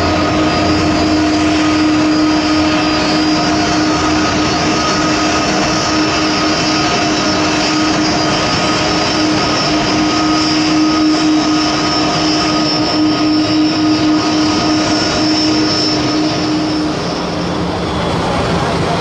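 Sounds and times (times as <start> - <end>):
jet engines running with whine: 0.0 - 19.0.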